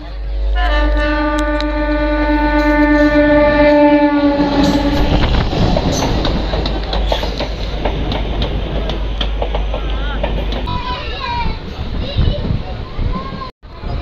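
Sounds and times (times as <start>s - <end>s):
train horn blast: 0.0s - 5.5s
train wheels clattering over rail joints: 3.5s - 12.0s.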